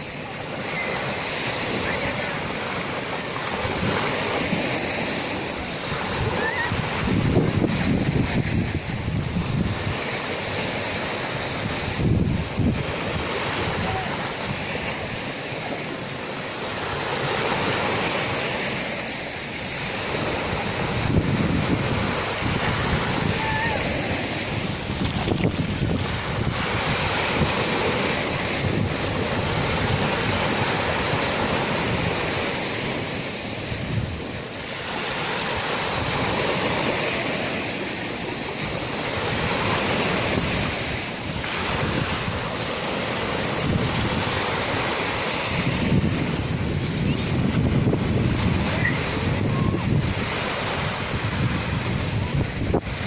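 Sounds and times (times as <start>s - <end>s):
sea waves surging: 0.0s - 53.0s
wind buffeting microphone: 3.4s - 15.4s, 19.9s - 53.0s.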